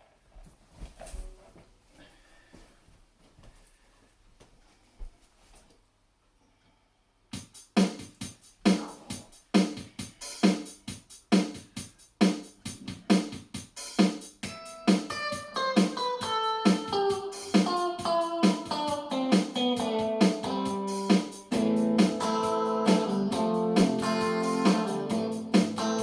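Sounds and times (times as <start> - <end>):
guitar melody notes: 14.4 - 26.0
acoustic guitar strumming: 14.6 - 26.0.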